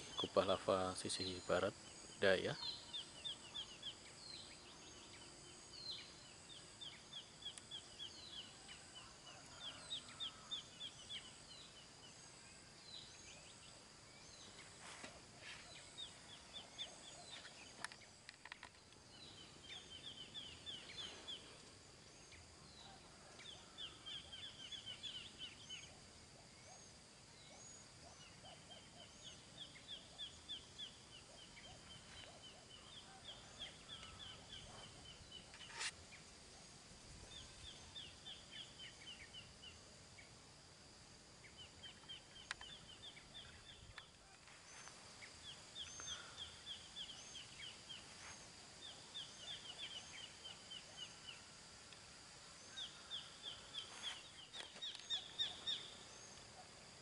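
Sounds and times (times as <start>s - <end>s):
birds chirping: 0.0s - 8.9s, 41.4s - 57.0s
steady high-pitched whine: 0.0s - 57.0s.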